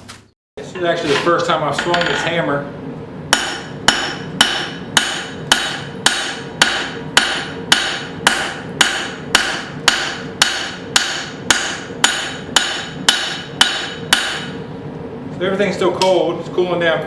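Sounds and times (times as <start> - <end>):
hammer striking steel on anvil: 3.3 - 14.6.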